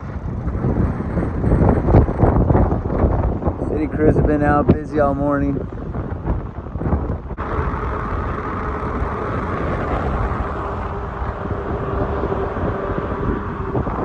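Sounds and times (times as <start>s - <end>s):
wind buffeting microphone: 0.0s - 14.0s
motor hum: 6.2s - 14.0s.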